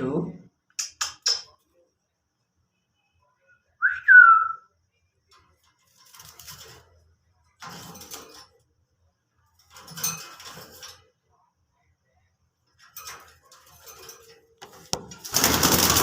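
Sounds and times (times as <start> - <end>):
parrot whistle: 3.8 - 4.7.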